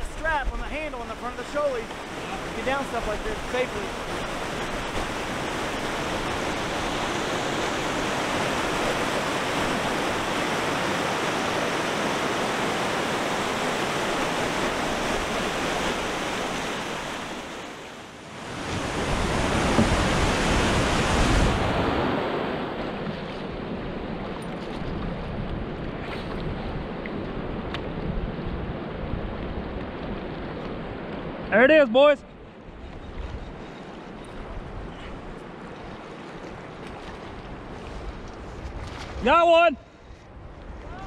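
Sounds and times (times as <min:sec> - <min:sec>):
river water rushing over rocks: 0:00.7 - 0:21.8.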